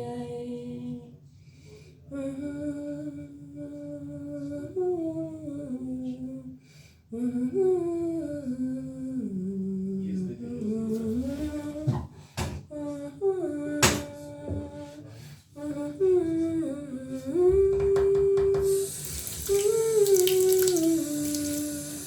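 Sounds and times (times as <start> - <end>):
person humming a slow melody: 7.2 - 11.9, 12.7 - 22.0.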